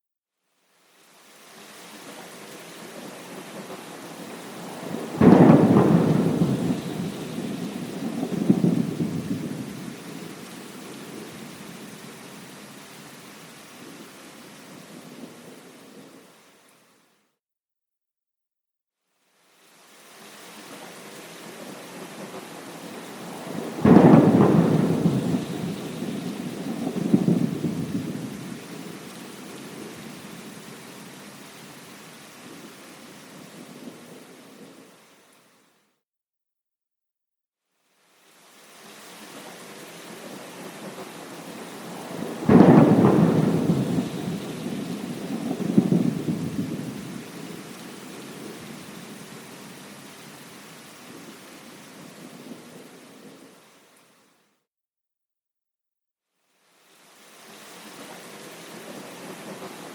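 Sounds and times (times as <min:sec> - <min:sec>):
steady rain: 0:00.4 - 0:17.2, 0:19.1 - 0:35.9, 0:37.7 - 0:54.6, 0:56.4 - 0:59.9
thunder clap and rumble: 0:04.6 - 0:10.0, 0:23.1 - 0:28.8, 0:40.9 - 0:48.6.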